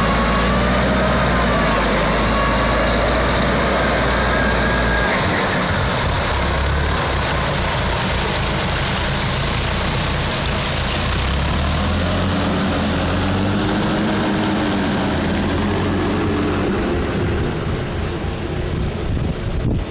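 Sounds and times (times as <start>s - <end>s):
tractor engine under load: 0.0s - 19.9s.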